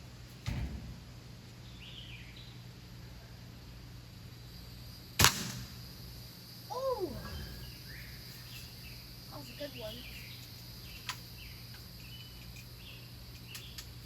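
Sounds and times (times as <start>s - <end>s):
bb gun crack: 5.2s - 5.9s.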